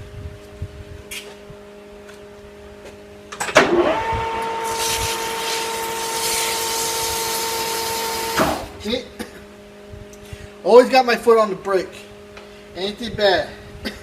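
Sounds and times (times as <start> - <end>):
metal lathe spindle whine: 3.7 - 8.7.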